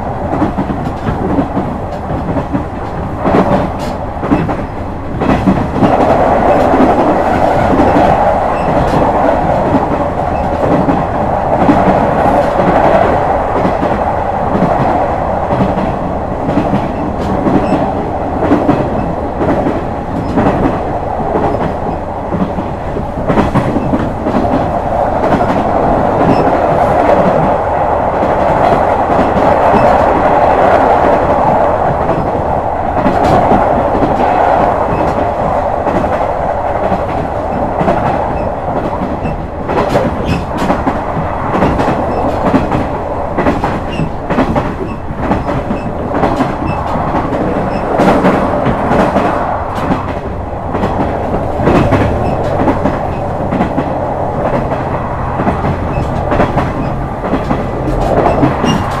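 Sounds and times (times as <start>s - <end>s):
railcar running rumble: 0.0s - 59.0s
wheels clicking over rail joints: 36.8s - 59.0s.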